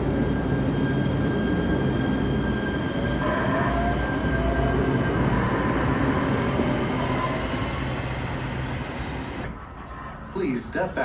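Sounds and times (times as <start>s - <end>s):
faint train whine: 0.0s - 11.0s
light rail train running on rails: 0.0s - 11.0s.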